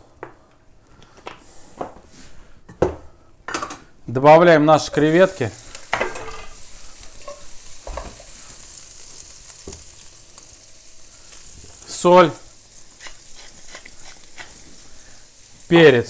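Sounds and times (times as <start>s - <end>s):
person speaking: 4.1s - 5.6s
shrimp sizzling in oil: 4.9s - 16.0s.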